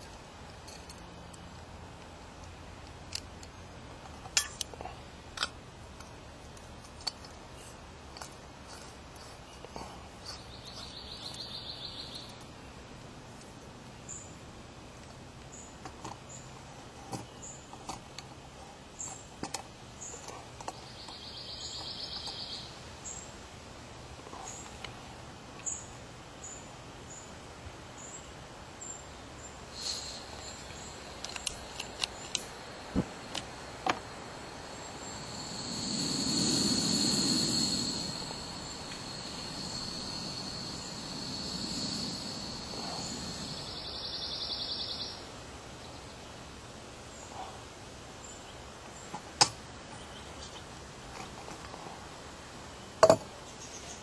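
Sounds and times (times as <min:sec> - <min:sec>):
small bird chirping: 0:10.2 - 0:12.4, 0:20.0 - 0:23.3, 0:28.8 - 0:45.3
buzzing insect calls: 0:29.7 - 0:45.2
low rushing noise: 0:29.8 - 0:44.7
sharp clicks: 0:30.3 - 0:32.5.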